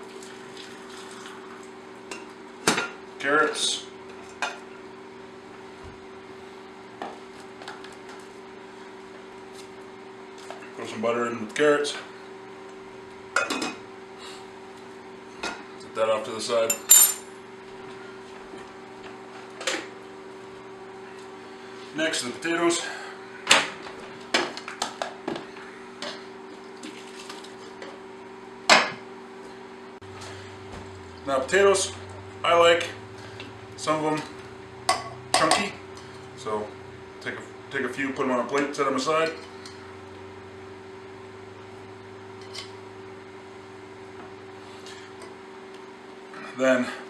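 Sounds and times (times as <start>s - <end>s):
microwave oven humming: 0.0s - 47.0s
kitchenware clattering: 16.7s - 17.3s.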